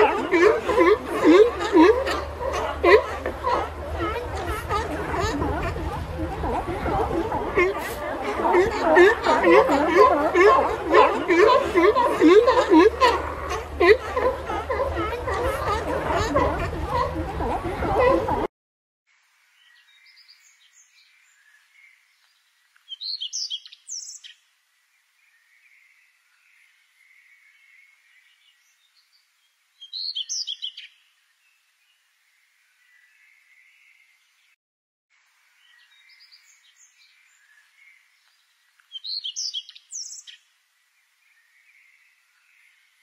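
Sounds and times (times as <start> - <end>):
birds chirping: 0.0 - 18.5, 38.8 - 40.4
light steady hiss: 19.1 - 30.0, 35.2 - 43.0.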